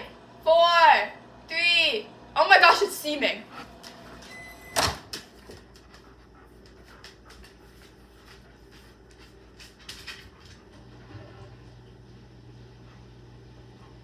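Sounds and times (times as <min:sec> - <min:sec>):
microwave beep: 0:04.2 - 0:05.1.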